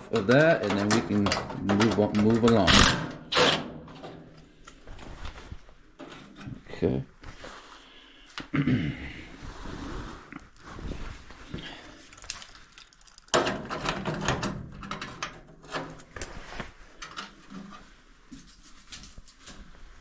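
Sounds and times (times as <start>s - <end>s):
hand tools clicking and scraping on screws: 0.0s - 4.8s, 12.1s - 16.3s.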